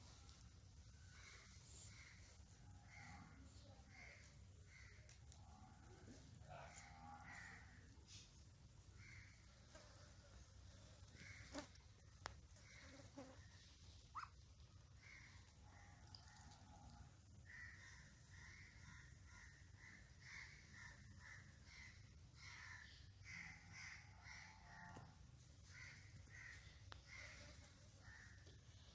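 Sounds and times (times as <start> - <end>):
faint raspy bird calls: 1.0 - 7.9, 9.0 - 9.6, 12.6 - 14.4, 15.0 - 28.5.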